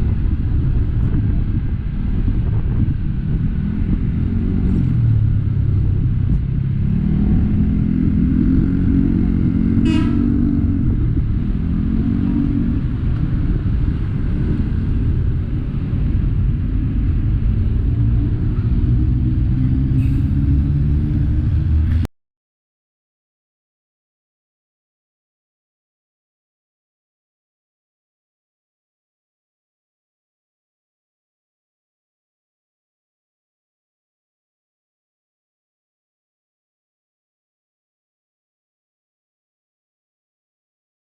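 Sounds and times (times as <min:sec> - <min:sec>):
vehicle engine revving: 0:00.0 - 0:22.1
short horn toot: 0:09.8 - 0:10.6.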